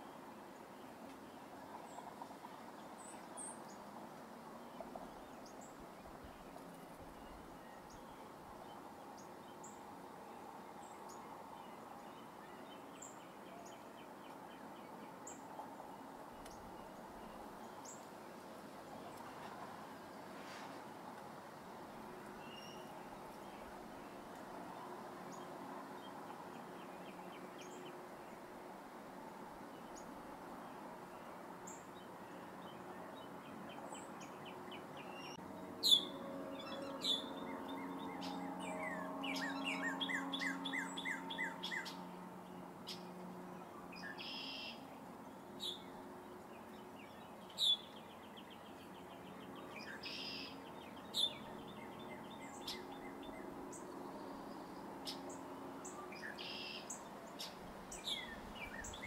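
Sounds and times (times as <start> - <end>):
birds chirping and trilling: 33.9 - 43.2, 45.6 - 59.0.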